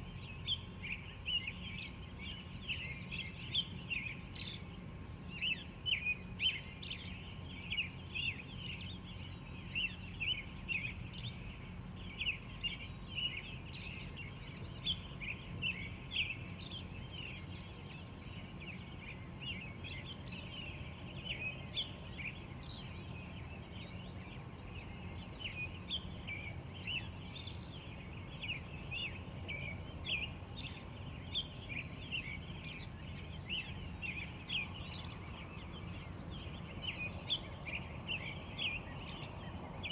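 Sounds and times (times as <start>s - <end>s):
birds chirping: 30.7s - 39.9s.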